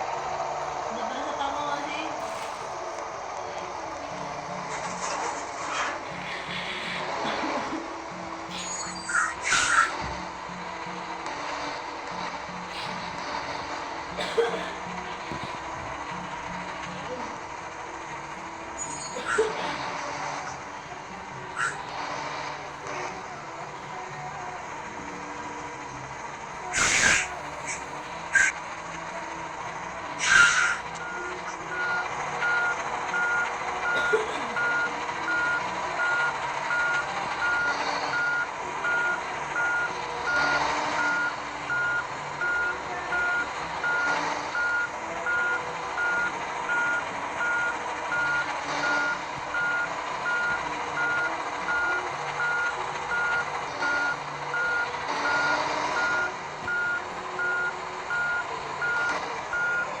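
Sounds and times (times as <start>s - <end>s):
truck engine running: 0.0s - 60.0s
truck reversing alarm beeping: 0.0s - 60.0s
air hiss: 2.1s - 25.8s, 26.4s - 33.0s.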